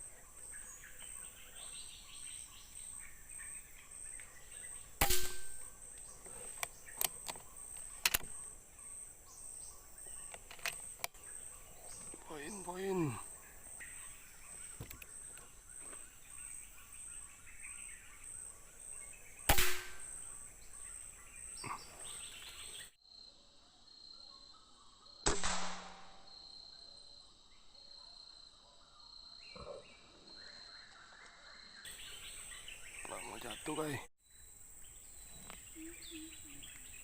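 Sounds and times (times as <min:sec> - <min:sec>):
bird chirps: 0:00.0 - 0:23.0, 0:29.0 - 0:37.0
insect buzz: 0:00.0 - 0:25.3, 0:31.5 - 0:37.0
air rifle shots: 0:05.0 - 0:05.7, 0:19.5 - 0:20.2, 0:25.3 - 0:26.2.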